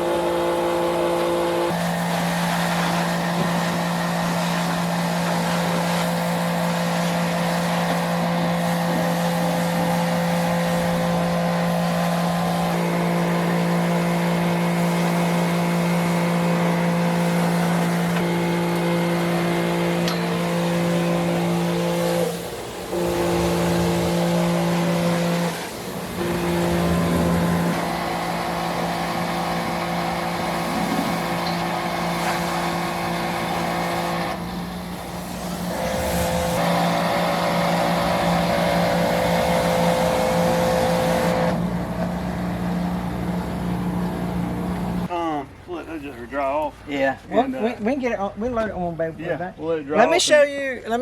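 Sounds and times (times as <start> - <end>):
diesel engine droning: 10.2 - 45.1.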